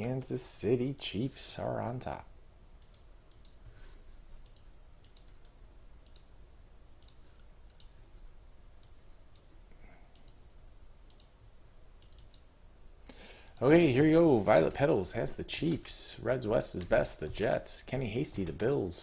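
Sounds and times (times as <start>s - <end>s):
low steady hum: 0.0s - 19.0s
computer mouse and keyboard clicks: 4.4s - 6.3s, 11.1s - 11.4s, 12.0s - 12.4s.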